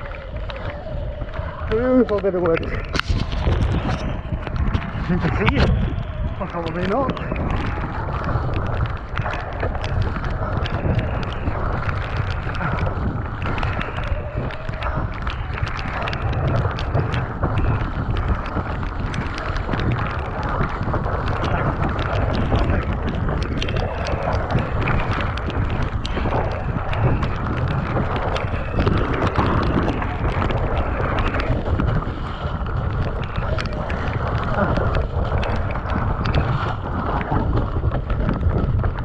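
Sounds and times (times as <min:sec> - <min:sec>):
bike rattling over bumps: 0:00.0 - 0:39.0
tyres rumbling over mud: 0:00.0 - 0:39.0
wind buffeting microphone: 0:00.0 - 0:39.0.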